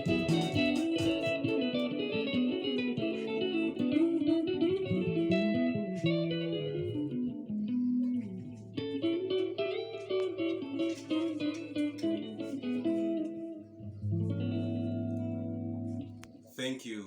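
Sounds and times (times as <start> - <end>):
bass guitar line: 0.0 - 1.6
electric guitars picking fast runs: 0.0 - 2.5.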